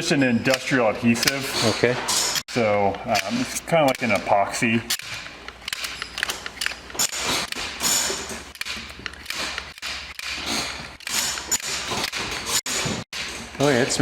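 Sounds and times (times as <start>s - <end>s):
cartridge gun clicking and creaking: 0.5s - 13.3s.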